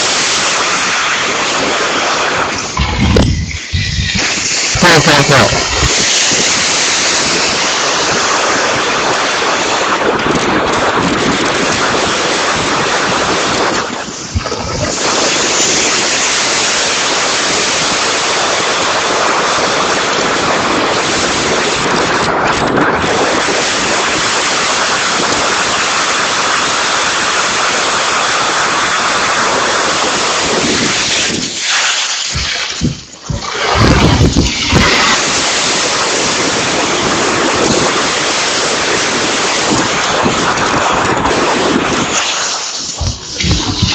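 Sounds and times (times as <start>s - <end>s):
heavy rain: 0.0s - 43.9s
strong wind: 0.0s - 43.9s.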